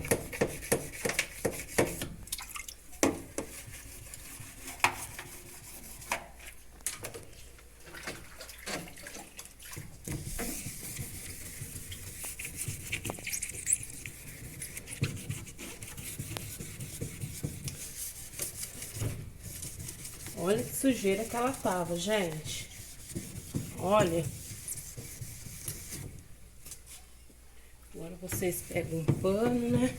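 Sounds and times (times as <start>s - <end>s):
wet scrubbing by hand: 7.8s - 26.1s.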